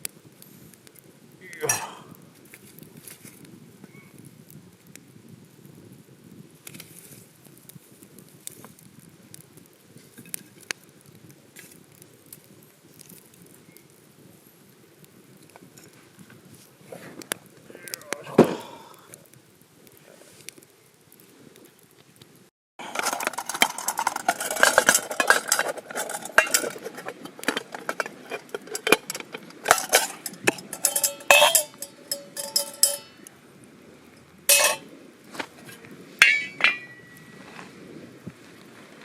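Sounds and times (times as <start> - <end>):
metal cookware clattering: 22.8 - 33.3, 34.5 - 34.8, 36.2 - 37.3
single ringing metal strikes: 30.8 - 33.3.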